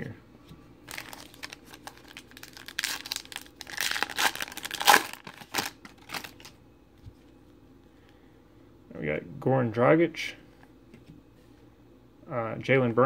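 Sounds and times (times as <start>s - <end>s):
foil wrapper crinkling: 0.9s - 6.6s.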